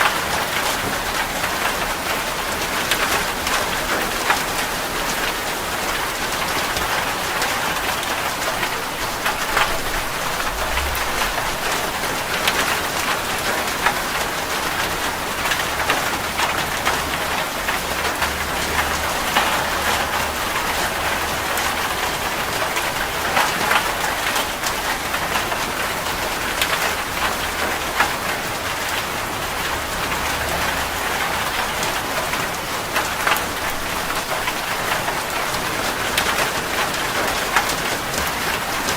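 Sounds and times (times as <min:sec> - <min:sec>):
rain falling: 0:00.0 - 0:38.9
raindrops ticking on a surface: 0:00.0 - 0:38.9
faint low rumble: 0:09.3 - 0:12.7.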